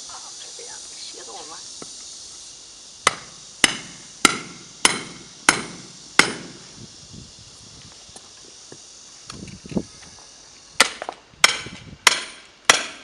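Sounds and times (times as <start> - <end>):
hammer striking metal: 3.1 - 6.6, 10.8 - 13.0.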